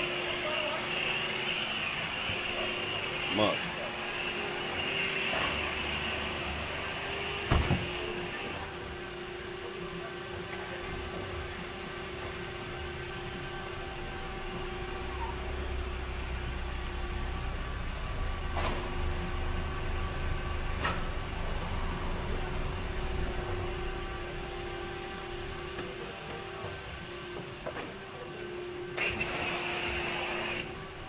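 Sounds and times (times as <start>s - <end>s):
mechanical hum with rumble: 10.8s - 29.0s
hiss: 29.0s - 30.7s.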